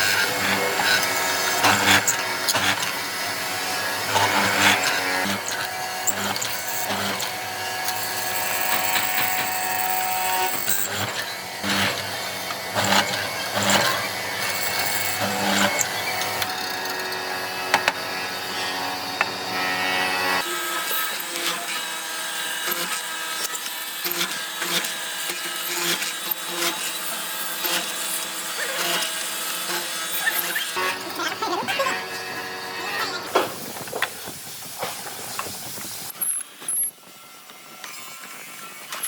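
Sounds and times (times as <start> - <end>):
power tool bursts: 0.0 - 18.0.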